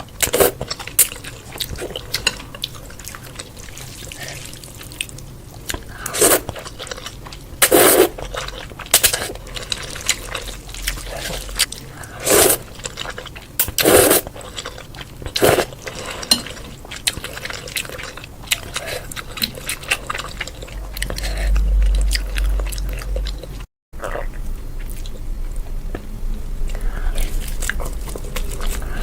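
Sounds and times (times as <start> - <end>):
person chewing with mouth clicks: 0.0 - 29.0
low rumble: 20.2 - 29.0.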